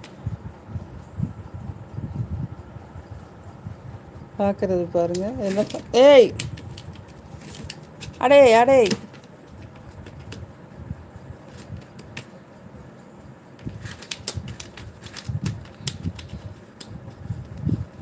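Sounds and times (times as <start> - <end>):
cat pawing with light clicks: 5.1 - 8.2.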